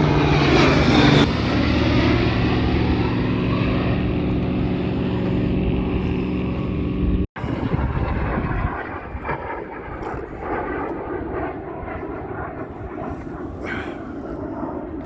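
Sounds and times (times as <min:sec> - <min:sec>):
propeller airplane engine drone: 0:00.0 - 0:15.0
rough aircraft engine noise: 0:00.0 - 0:15.0.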